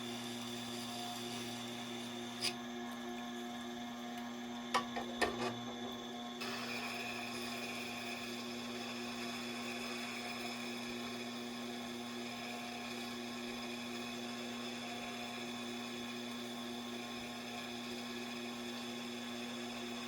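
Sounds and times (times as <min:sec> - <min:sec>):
sharpening machine humming: 0:00.0 - 0:20.0.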